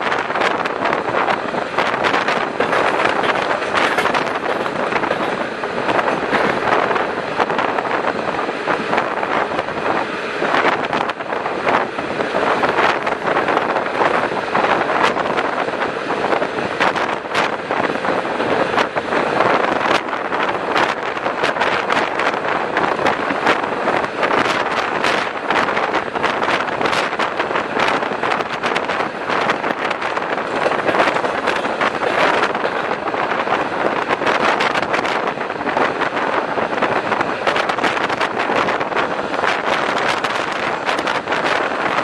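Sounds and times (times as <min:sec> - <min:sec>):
train wheels rushing on rails: 0:00.0 - 0:42.0
sharp clicks and knocks: 0:01.8 - 0:06.8.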